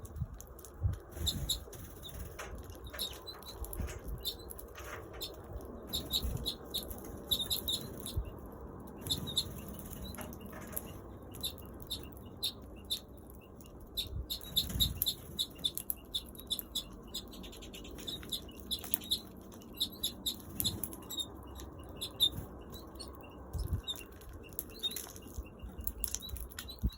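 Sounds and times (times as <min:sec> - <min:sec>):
wings fluttering: 0:00.1 - 0:26.9
birds chirping: 0:01.2 - 0:26.9.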